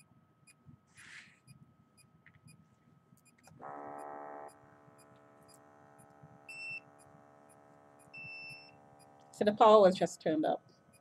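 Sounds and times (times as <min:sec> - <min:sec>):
cuff pump buzzing hum: 0:02.4 - 0:11.0.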